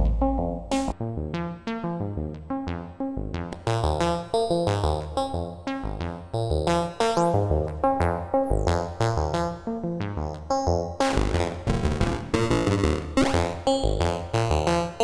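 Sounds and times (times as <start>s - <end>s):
synthesizer bass line: 0.0s - 1.0s.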